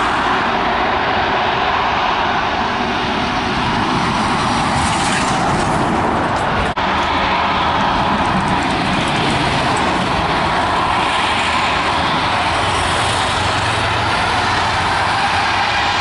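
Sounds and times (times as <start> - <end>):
jet engines at takeoff power: 0.0 - 16.0.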